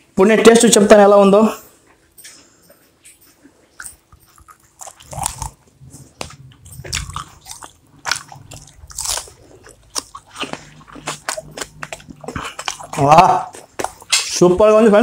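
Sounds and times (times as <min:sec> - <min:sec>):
chewing crisp fried food: 0:02.8 - 0:14.5.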